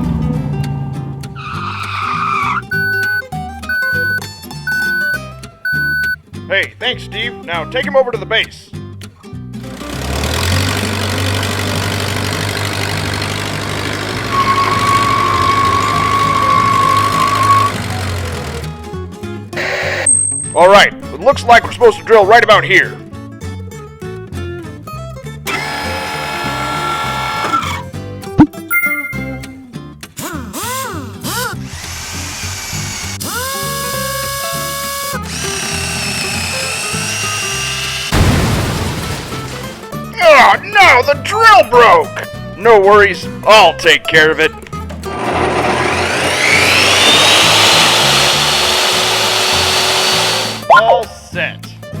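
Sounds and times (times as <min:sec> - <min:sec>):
power drill whirring: 0:09.8 - 0:18.7, 0:25.5 - 0:27.8, 0:31.5 - 0:38.1, 0:45.0 - 0:50.7
background music: 0:39.6 - 0:46.0.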